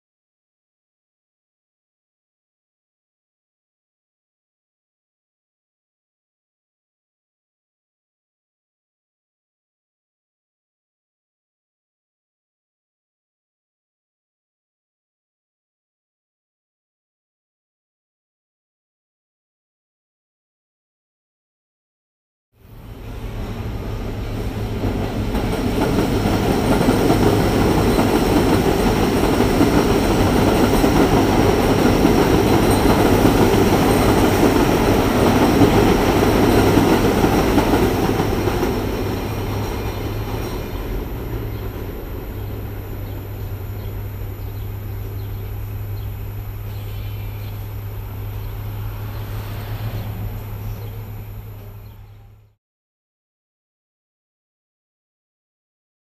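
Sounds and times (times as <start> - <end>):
elevated train passing overhead: 22.6 - 52.6.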